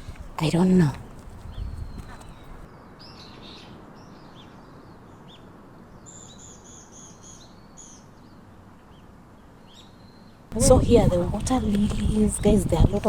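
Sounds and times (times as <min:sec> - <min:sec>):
birds chirping: 0:00.0 - 0:04.5, 0:10.5 - 0:13.0.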